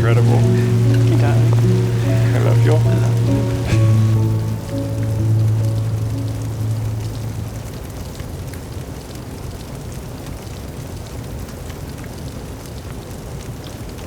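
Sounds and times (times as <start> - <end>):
drops ticking: 0.0 - 8.3
steady rain: 0.0 - 14.0.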